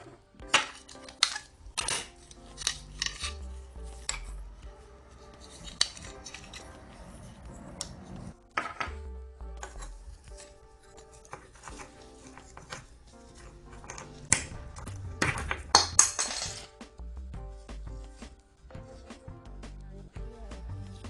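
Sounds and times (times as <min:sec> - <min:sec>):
quiet background music: 0:00.0 - 0:21.0
low rumble: 0:06.0 - 0:08.4
metal tools clinking: 0:15.7 - 0:16.7.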